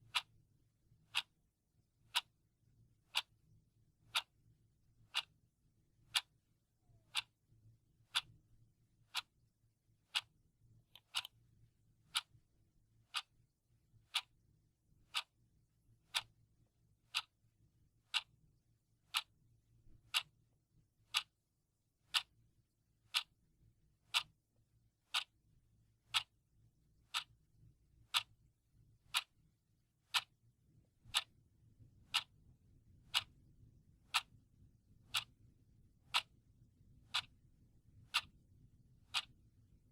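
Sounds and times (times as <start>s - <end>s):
clock ticking: 0.0s - 0.3s, 1.1s - 1.3s, 2.1s - 2.3s, 3.1s - 3.3s, 4.1s - 4.3s, 5.1s - 5.3s, 6.1s - 6.3s, 7.0s - 7.3s, 8.1s - 8.3s, 9.1s - 9.3s, 10.1s - 10.3s, 10.9s - 11.3s, 12.1s - 12.4s, 13.1s - 13.3s, 14.1s - 14.3s, 15.1s - 15.3s, 16.1s - 16.3s, 17.1s - 17.3s, 18.1s - 18.3s, 20.1s - 20.3s, 21.1s - 21.3s, 22.1s - 22.3s, 23.1s - 23.3s, 24.1s - 24.3s, 25.1s - 25.3s, 26.1s - 26.3s, 27.1s - 27.3s, 28.1s - 28.3s, 29.1s - 29.3s, 30.1s - 30.4s, 31.1s - 31.3s, 32.1s - 32.4s, 33.1s - 33.3s, 34.1s - 34.4s, 35.1s - 35.3s, 36.1s - 36.4s, 37.1s - 37.3s, 38.1s - 38.4s, 39.1s - 39.3s.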